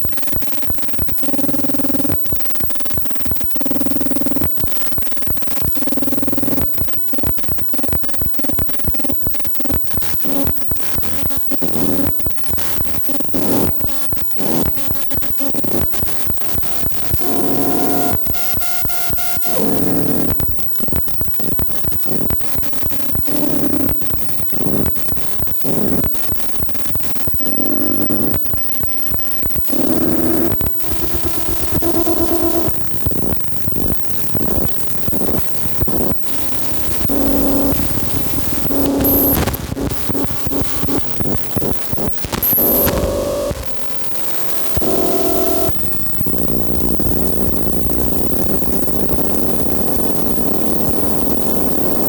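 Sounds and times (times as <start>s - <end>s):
noise and crackling glitches: 0.0s - 52.0s
experimental electronic music: 23.0s - 45.7s.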